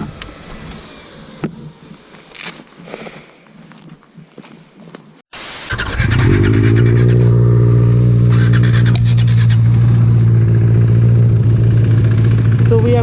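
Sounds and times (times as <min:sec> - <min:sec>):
motorcycle engine starting and idling: 0:00.0 - 0:02.7, 0:05.6 - 0:13.0.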